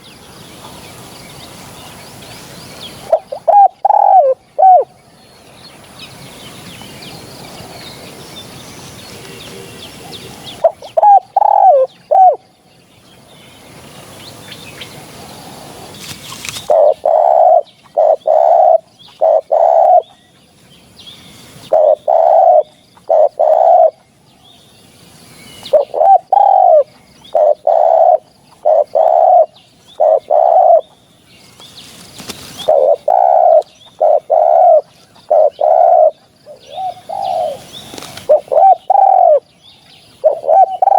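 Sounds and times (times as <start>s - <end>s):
dove cooing: 3.0s - 4.9s, 9.1s - 12.4s, 16.5s - 20.1s, 21.6s - 24.1s, 25.6s - 30.9s, 32.2s - 39.4s, 40.2s - 40.9s
steady hiss: 20.5s - 21.8s.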